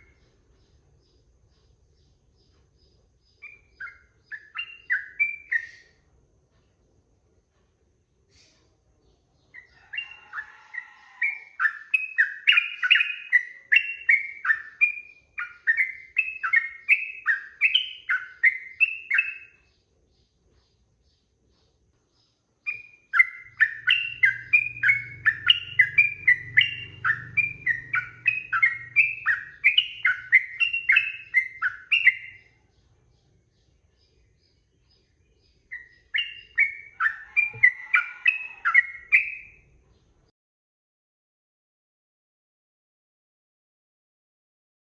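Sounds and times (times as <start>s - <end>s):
bird singing rapid notes: 0.0s - 6.0s, 11.2s - 39.6s
faint low hum: 0.0s - 40.3s.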